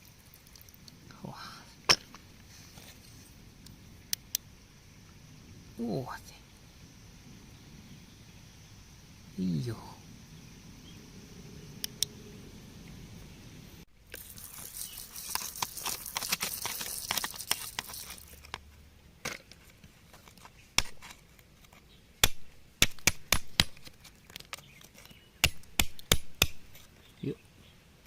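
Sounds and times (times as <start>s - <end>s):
tool scraping stony ground: 1.9s - 3.4s, 14.1s - 18.6s, 19.2s - 21.8s.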